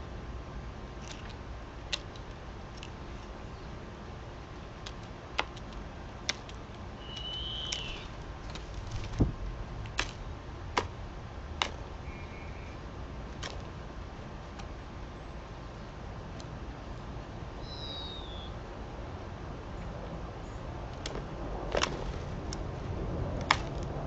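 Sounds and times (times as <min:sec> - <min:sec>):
faint chirp: 0:07.0 - 0:08.1, 0:12.0 - 0:12.8, 0:17.6 - 0:18.6
short bird whistle: 0:07.0 - 0:08.1, 0:12.1 - 0:12.8, 0:17.6 - 0:18.6.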